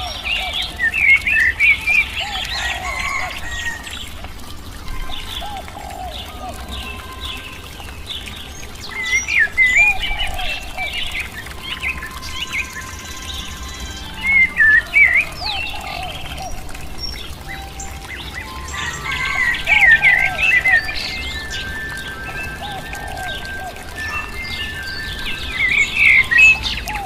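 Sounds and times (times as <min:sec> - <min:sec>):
songbirds chirping and twittering: 0:00.0 - 0:27.0
soft background music: 0:11.0 - 0:25.7.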